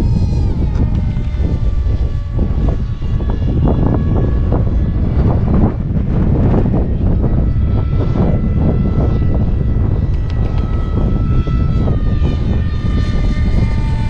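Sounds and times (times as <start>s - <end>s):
electric motor propeller whining: 0.0s - 14.0s
wind buffeting microphone: 0.0s - 14.0s.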